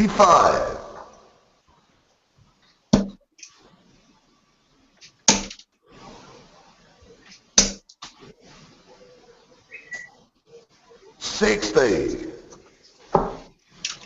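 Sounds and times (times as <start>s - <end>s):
darts thudding into dartboard: 3.0s - 3.2s.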